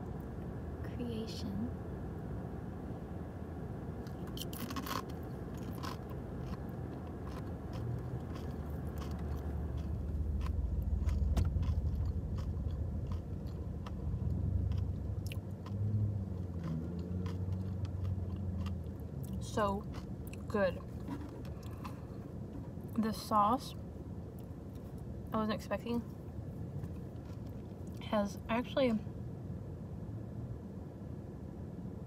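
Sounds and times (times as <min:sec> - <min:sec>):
low hum: 0:00.0 - 0:32.0
crunching and chewing chips: 0:04.0 - 0:23.0, 0:26.8 - 0:28.0.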